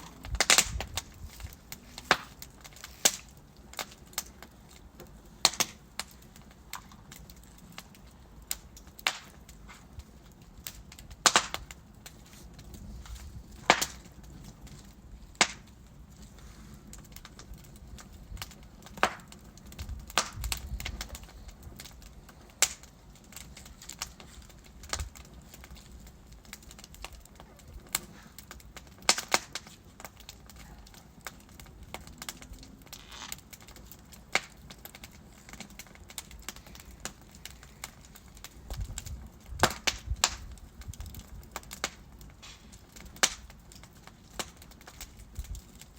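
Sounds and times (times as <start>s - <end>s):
burning logs crackling: 0.0s - 45.9s.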